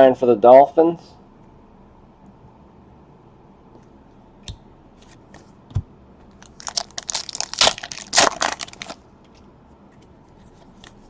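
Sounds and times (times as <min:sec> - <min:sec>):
wrapper tearing and crinkling: 0:06.4 - 0:09.0.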